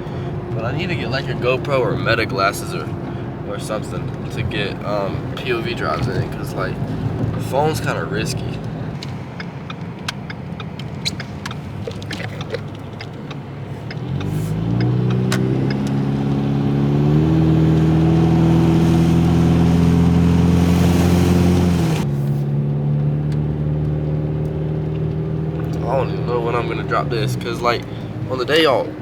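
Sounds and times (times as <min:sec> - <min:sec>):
car engine accelerating: 0:00.0 - 0:29.0
light ticks: 0:08.6 - 0:16.0.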